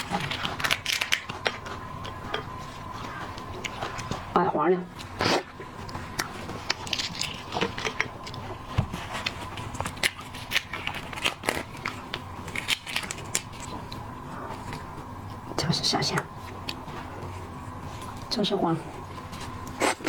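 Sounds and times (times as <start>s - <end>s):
seafood shells cracked by hand: 0.0s - 2.5s, 9.7s - 13.7s.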